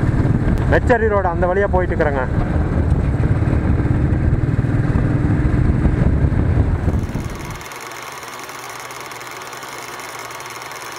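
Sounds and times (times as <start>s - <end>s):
wind buffeting microphone: 0.0s - 7.6s
motorcycle engine: 2.3s - 10.9s.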